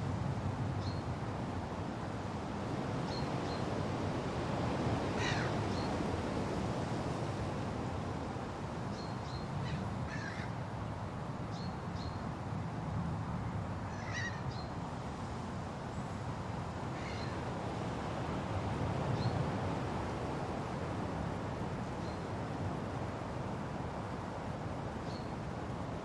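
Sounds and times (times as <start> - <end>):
wind rushing through trees: 0.0 - 26.0
bird calls: 13.9 - 14.7.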